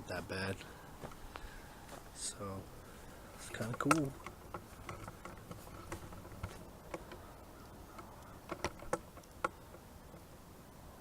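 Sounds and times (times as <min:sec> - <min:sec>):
light clicks and ticks: 0:03.4 - 0:10.3.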